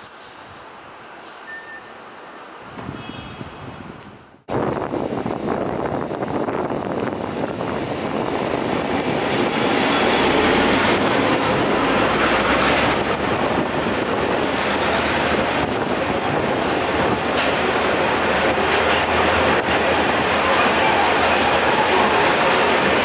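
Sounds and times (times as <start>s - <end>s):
train wheels rushing on track: 5.0s - 23.0s.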